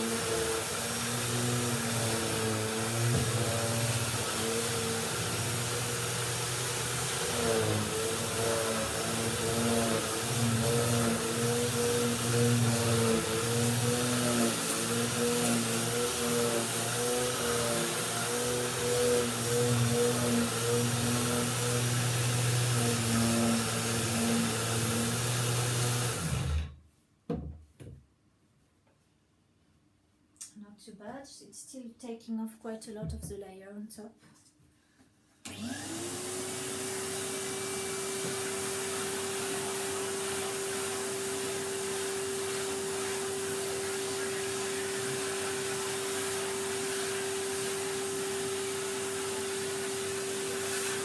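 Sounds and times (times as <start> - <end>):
vacuum cleaner running: 0.0 - 26.8, 35.4 - 51.0.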